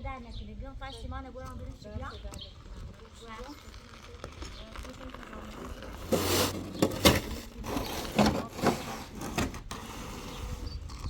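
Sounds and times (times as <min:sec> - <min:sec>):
scrapes and knocks: 0:03.6 - 0:11.0.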